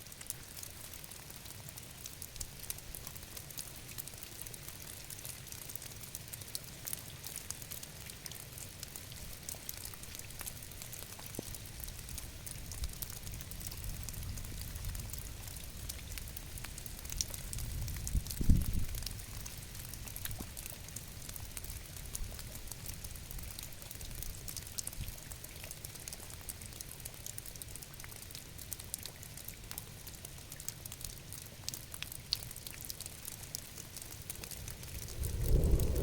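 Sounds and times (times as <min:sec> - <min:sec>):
steady rainfall: 0:00.0 - 0:36.0
low rumble: 0:34.4 - 0:36.0.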